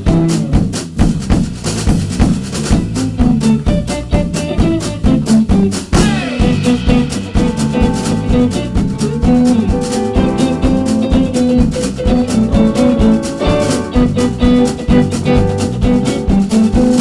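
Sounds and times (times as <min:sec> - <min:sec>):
drum kit beat: 0:00.0 - 0:17.0
guitar: 0:00.0 - 0:17.0
sustained melody notes: 0:06.0 - 0:15.6.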